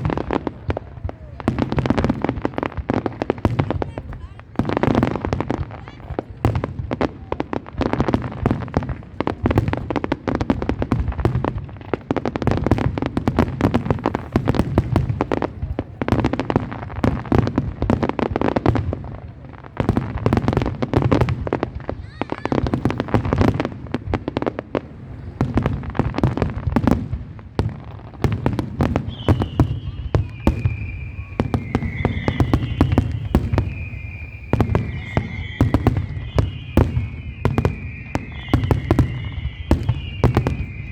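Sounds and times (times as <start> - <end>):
fireworks bangs and crackles: 0.0 - 40.9
high wavering whistles: 28.2 - 40.9.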